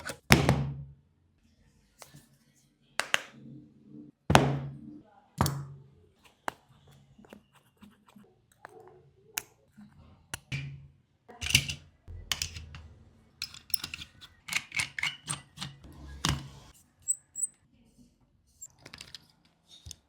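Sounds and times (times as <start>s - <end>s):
repair tools clicking and tapping: 13.4s - 16.5s.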